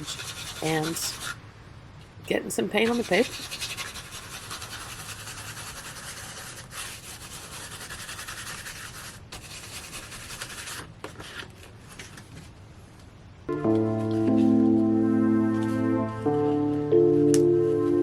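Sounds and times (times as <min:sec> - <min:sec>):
paint scrubbed onto paper: 0:00.0 - 0:01.4, 0:02.8 - 0:11.5.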